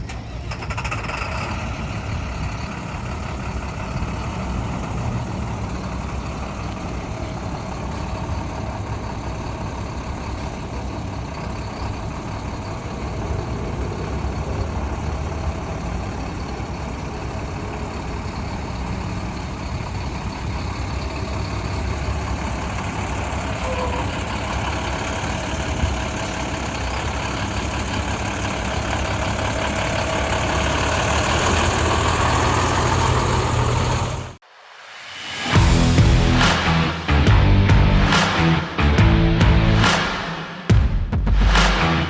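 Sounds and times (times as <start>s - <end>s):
diesel truck engine rumbling: 0.0s - 34.4s, 35.5s - 42.0s.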